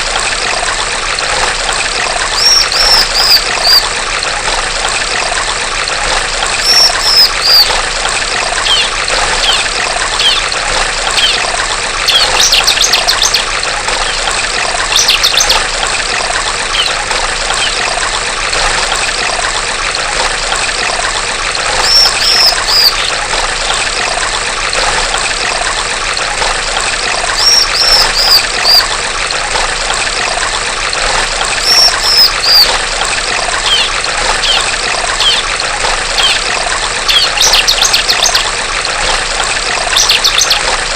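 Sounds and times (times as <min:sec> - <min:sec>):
stream water trickling: 0:00.0 - 0:40.9
bird calling: 0:02.3 - 0:03.9, 0:06.6 - 0:07.7, 0:08.6 - 0:11.5, 0:12.1 - 0:14.2, 0:14.9 - 0:15.6, 0:16.7 - 0:17.9, 0:21.8 - 0:23.2, 0:27.3 - 0:28.9, 0:31.6 - 0:32.7, 0:33.6 - 0:35.5, 0:36.1 - 0:38.5, 0:39.9 - 0:40.7.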